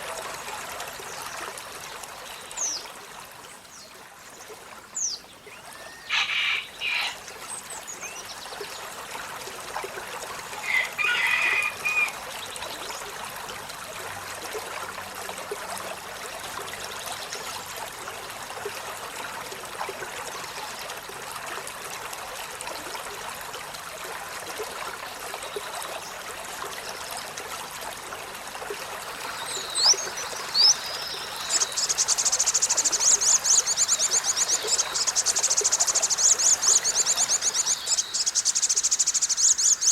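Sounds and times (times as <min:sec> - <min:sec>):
trickling water: 0:00.0 - 0:39.9
bird calling and trilling: 0:29.4 - 0:39.9.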